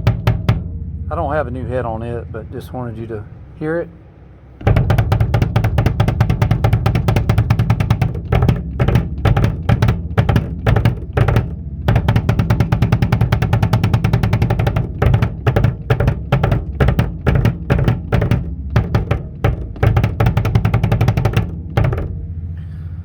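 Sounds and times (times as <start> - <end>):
bass drum: 0.0 - 2.6, 4.6 - 22.7
drum roll: 0.0 - 3.9, 4.6 - 22.3
tom drum runs: 0.0 - 22.6.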